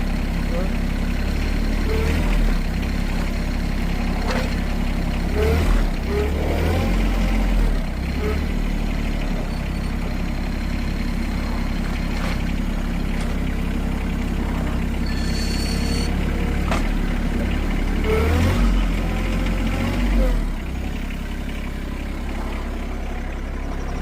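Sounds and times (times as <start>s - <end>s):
tractor engine rumbling: 0.0s - 24.0s
high-pitched tone: 15.0s - 16.2s.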